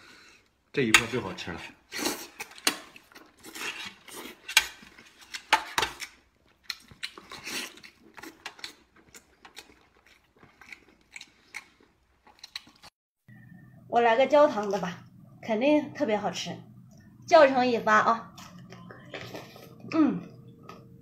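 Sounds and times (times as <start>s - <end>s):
wet chewing and mouth clicks: 2.0s - 12.9s.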